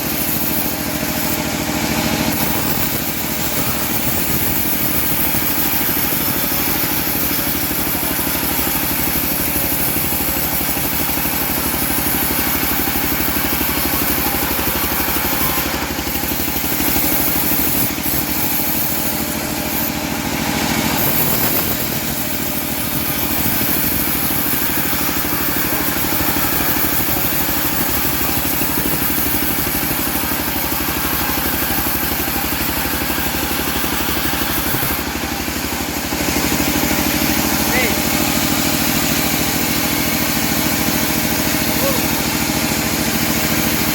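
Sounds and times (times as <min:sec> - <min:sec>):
sawmill engine running: 0:00.0 - 0:43.9.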